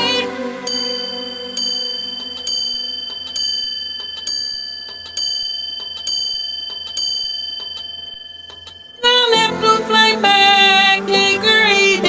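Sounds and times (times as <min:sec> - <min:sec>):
clock chime striking: 0:00.0 - 0:11.9.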